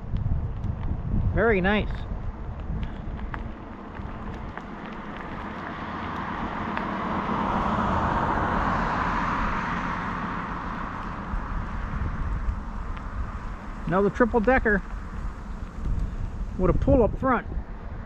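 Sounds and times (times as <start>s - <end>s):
wind rumble on microphone: 0.0s - 18.0s
car passing by: 3.2s - 16.7s.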